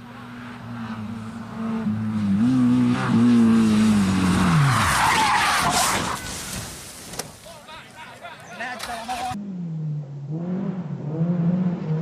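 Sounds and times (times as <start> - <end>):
rally car engine: 0.0 - 6.5, 8.8 - 12.0
loud rushing skid: 3.5 - 6.9.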